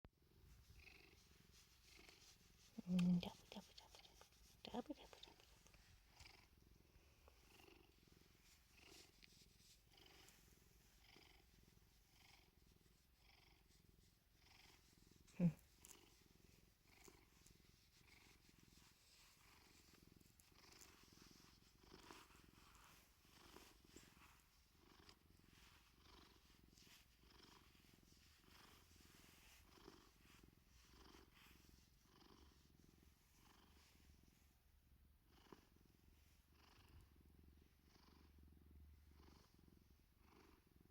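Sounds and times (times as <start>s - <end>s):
cat purring: 0.2s - 40.9s.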